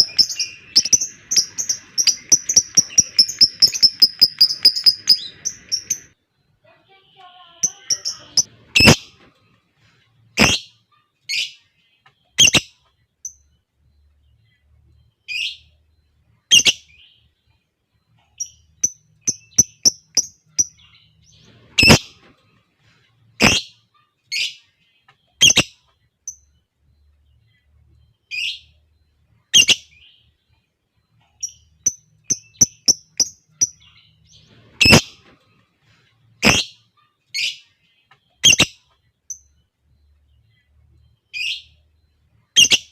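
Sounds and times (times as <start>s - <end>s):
lovebirds shrill calls: 0.0s - 6.1s, 7.6s - 9.1s, 10.4s - 10.6s, 21.4s - 22.3s, 23.4s - 23.7s, 31.4s - 35.3s, 36.4s - 36.8s
rapid bird chirps: 0.0s - 6.2s, 7.6s - 42.9s.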